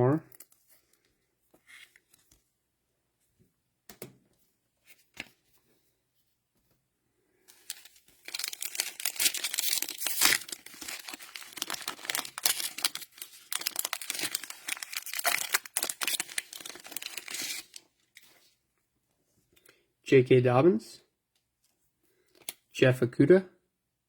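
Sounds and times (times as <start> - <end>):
plastic pack crackling: 7.5 - 18.3.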